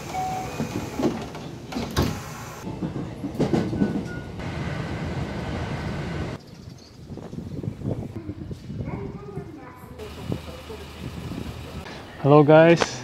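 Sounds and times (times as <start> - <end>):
clunks and rattles: 0.0 - 4.4
train rumbling: 0.0 - 6.4, 9.2 - 12.2.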